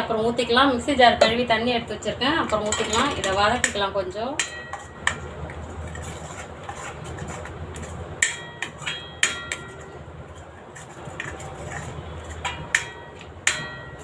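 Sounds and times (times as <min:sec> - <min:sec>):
paste sauteing in oil: 0:02.4 - 0:13.8
spoon clinking against pan: 0:02.5 - 0:05.2, 0:08.2 - 0:10.0
metal spoon scraping paste in pan: 0:02.5 - 0:14.0.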